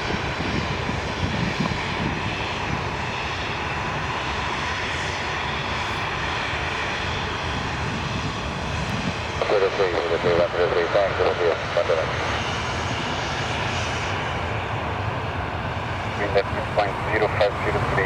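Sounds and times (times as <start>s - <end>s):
airliner engines running: 0.0s - 18.0s
high engine whine: 0.0s - 18.0s.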